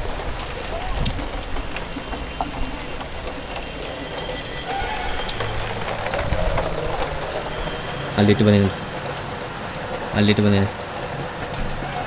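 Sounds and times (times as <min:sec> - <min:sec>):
rain falling: 0:00.0 - 0:12.0
raindrops ticking on surfaces: 0:00.0 - 0:12.0.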